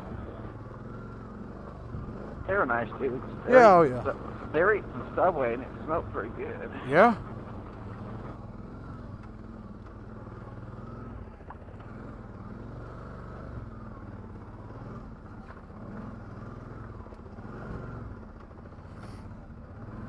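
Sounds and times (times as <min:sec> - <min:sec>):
atv engine running: 0:00.0 - 0:00.5, 0:02.5 - 0:08.4.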